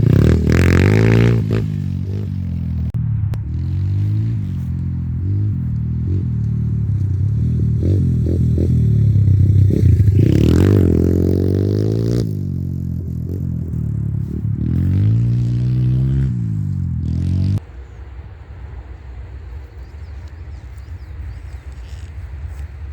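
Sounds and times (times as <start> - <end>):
pit bike engine revving: 0.0 - 17.7.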